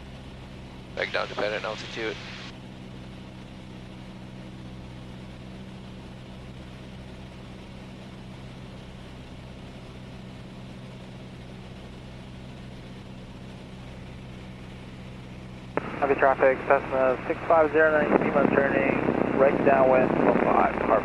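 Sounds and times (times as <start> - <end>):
airplane engine and propeller droning: 0.0 - 21.0
airflow noise: 14.5 - 21.0.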